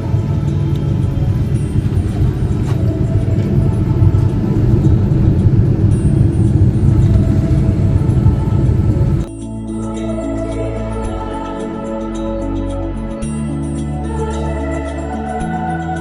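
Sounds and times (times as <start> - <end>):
airliner engine rumble in cabin: 0.0 - 9.3.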